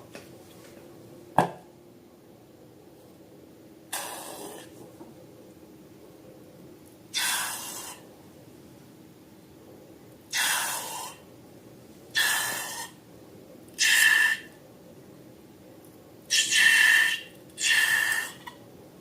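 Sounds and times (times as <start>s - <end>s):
air rushing out of balloon: 3.9s - 4.7s.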